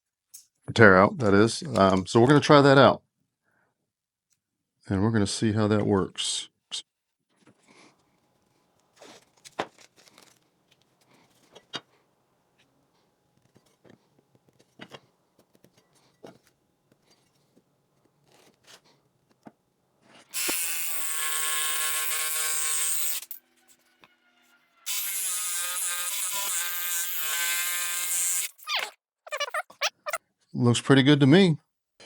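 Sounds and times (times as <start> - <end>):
jigsaw cutting wood: 20.3 - 23.4, 24.9 - 28.7.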